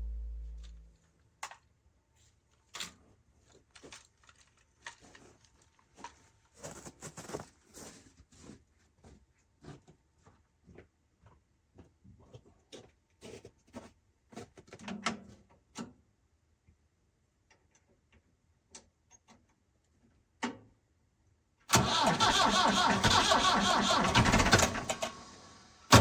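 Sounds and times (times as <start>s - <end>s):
tractor engine cranking on starter: 21.7s - 26.0s.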